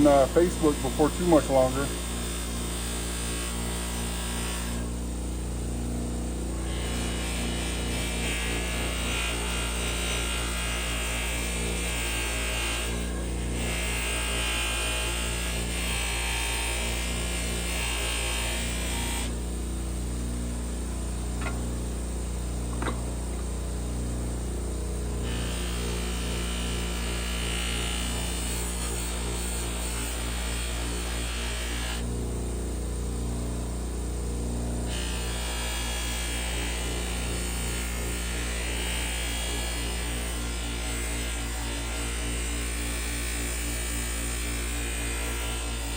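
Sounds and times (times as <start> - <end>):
small power tool running: 0.0 - 45.9.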